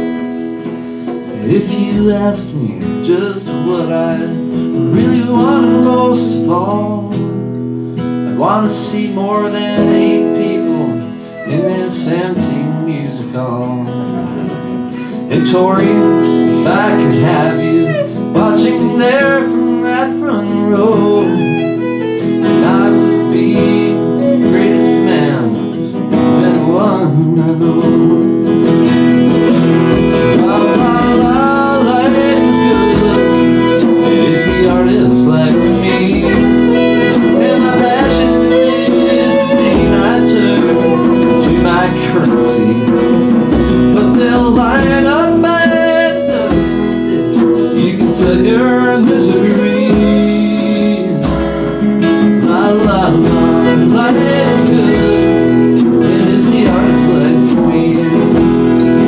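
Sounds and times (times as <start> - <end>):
acoustic guitar strumming: 0.0 - 59.0
violin sliding melody: 10.4 - 12.2, 14.8 - 15.4, 16.3 - 19.1, 20.8 - 24.6, 29.0 - 43.3, 53.3 - 56.4.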